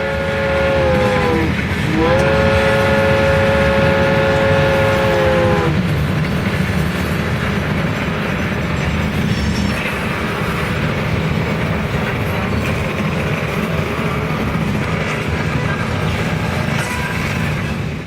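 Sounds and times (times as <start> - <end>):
train horn blasts: 0.0 - 5.8.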